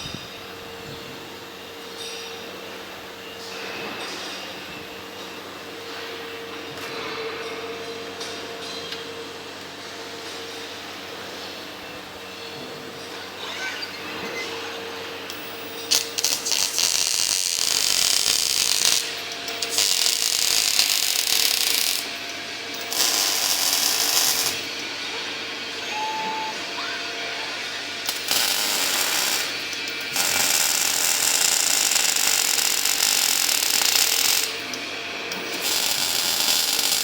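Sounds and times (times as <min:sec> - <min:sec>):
low machine hum: 0:08.6 - 0:32.4
welding arc crackling and hissing: 0:15.1 - 0:25.1, 0:25.9 - 0:37.0.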